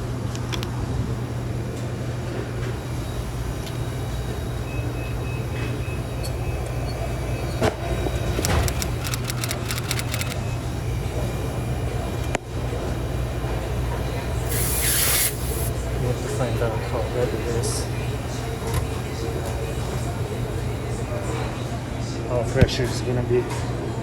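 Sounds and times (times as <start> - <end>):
low machine hum: 0.0 - 14.6
sharp metallic clicks: 8.1 - 10.4.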